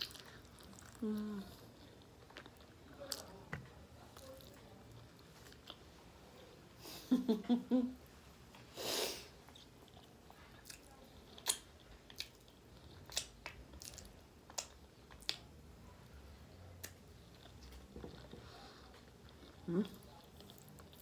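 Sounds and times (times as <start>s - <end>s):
person chewing food: 0.0s - 6.5s, 9.4s - 15.5s, 16.8s - 21.0s
wet mouth smacks and clicks: 13.1s - 13.6s.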